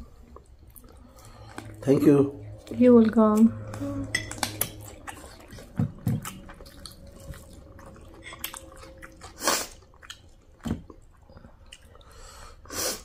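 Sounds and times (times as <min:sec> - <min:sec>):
people chewing and biting: 0:00.0 - 0:02.7, 0:03.7 - 0:13.0.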